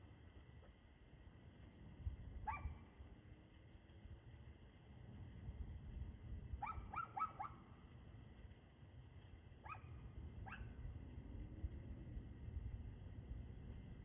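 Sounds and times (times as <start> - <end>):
low background rumble: 0.0 - 14.0
dog barking: 2.4 - 2.8, 6.6 - 7.6, 9.6 - 10.7.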